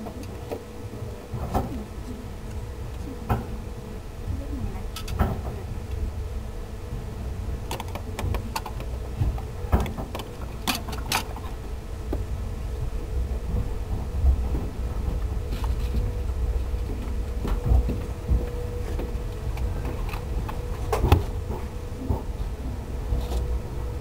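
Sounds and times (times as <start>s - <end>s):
faint steady hum: 0.0s - 24.0s
train car running rumble: 0.0s - 24.0s
wheels and couplings clicking: 7.6s - 11.6s.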